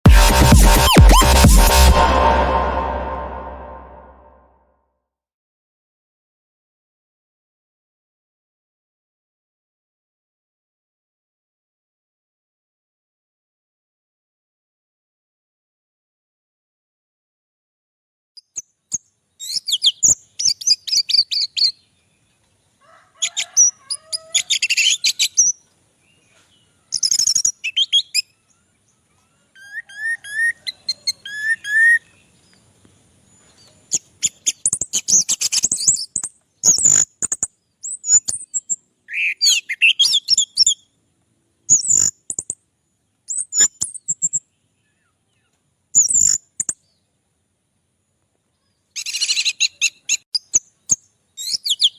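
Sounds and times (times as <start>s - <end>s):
thrush singing: 0.0s - 4.4s.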